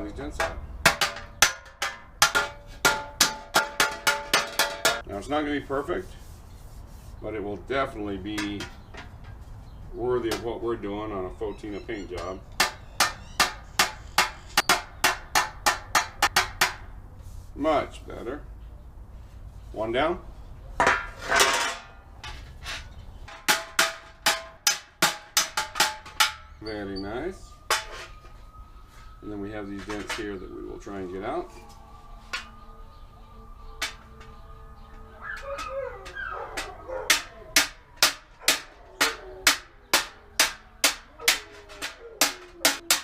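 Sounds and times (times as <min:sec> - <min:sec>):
metal knock and clank: 0:00.3 - 0:05.1, 0:20.8 - 0:26.7
hammer on sheet metal: 0:00.4 - 0:05.1, 0:12.6 - 0:16.9, 0:23.3 - 0:26.6, 0:36.6 - 0:43.0.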